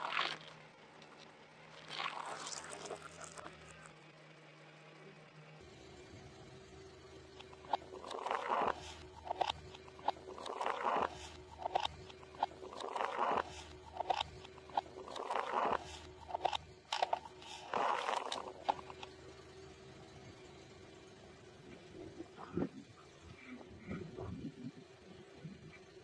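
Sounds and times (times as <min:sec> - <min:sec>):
crunchy food being chewed: 0:00.0 - 0:00.6, 0:01.8 - 0:03.9, 0:07.4 - 0:19.1.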